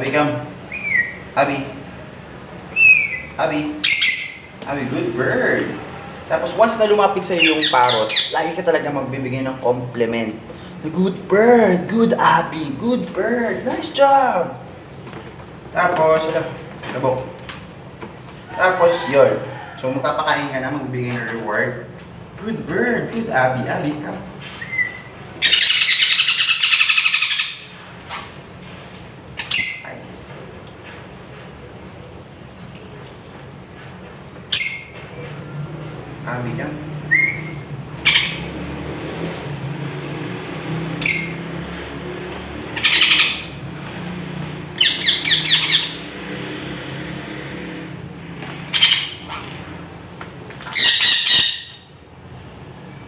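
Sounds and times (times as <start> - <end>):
parrot squawk: 0.7 - 1.2, 2.7 - 4.6, 7.4 - 8.4, 24.6 - 28.4, 29.4 - 30.2, 34.5 - 35.0, 37.1 - 38.5, 41.0 - 41.5, 42.7 - 43.6, 44.8 - 46.1, 48.7 - 49.7, 50.7 - 51.9
parrot chattering begging calls: 0.7 - 1.4, 2.7 - 4.6, 7.2 - 8.5, 24.6 - 28.4, 29.3 - 30.2, 34.5 - 35.2, 37.1 - 38.5, 41.0 - 41.7, 42.7 - 43.6, 44.7 - 46.2, 48.7 - 49.9, 50.7 - 52.0.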